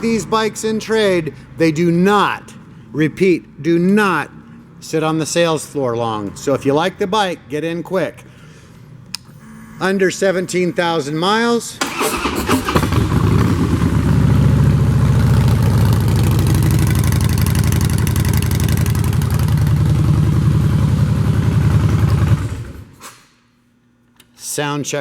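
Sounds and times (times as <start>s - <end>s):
motorcycle engine running: 12.6s - 22.9s.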